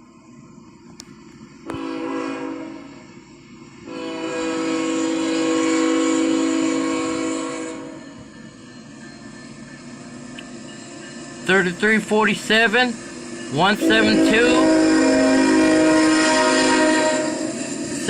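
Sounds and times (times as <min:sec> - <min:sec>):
passing train rumble: 0:00.0 - 0:18.0
locomotive air horn blasts: 0:01.7 - 0:02.9, 0:03.9 - 0:08.1, 0:13.8 - 0:17.5.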